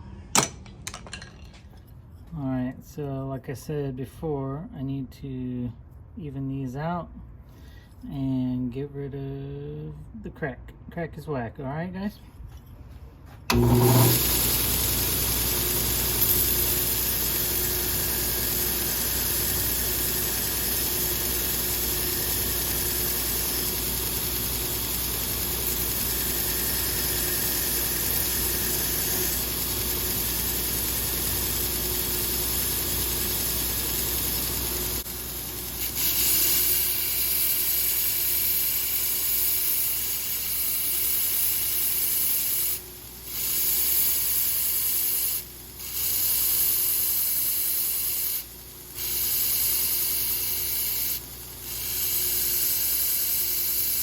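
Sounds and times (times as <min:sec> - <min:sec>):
electric grinder grinding metal: 0:13.5 - 0:54.0.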